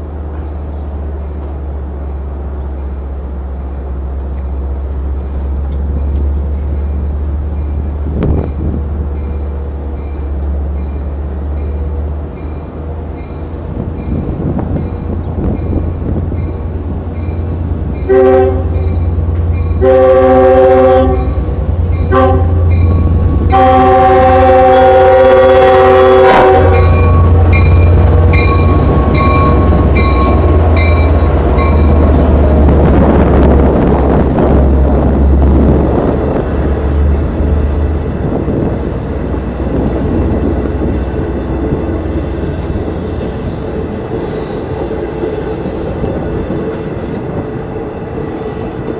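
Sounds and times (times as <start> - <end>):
train rumbling through: 0.0 - 48.9
crossing bells ringing: 5.1 - 44.2
train horn blasts: 18.0 - 31.8.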